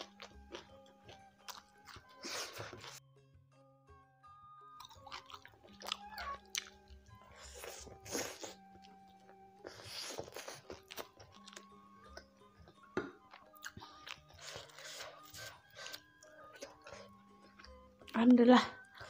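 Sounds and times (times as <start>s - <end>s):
soft background music: 0.0s - 19.0s
biting and chewing fish: 4.8s - 18.1s.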